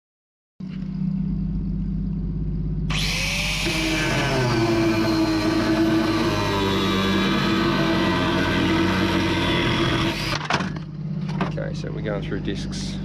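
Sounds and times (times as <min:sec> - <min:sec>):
angle grinder cutting steel: 0:02.9 - 0:10.6.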